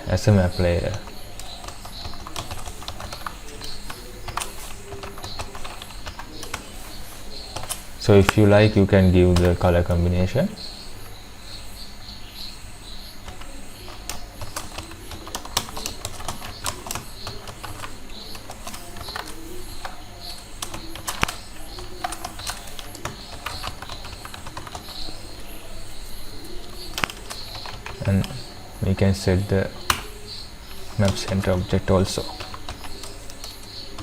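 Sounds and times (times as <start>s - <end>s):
computer keyboard typing: 0.4s - 8.5s, 13.2s - 28.6s, 29.7s - 34.0s.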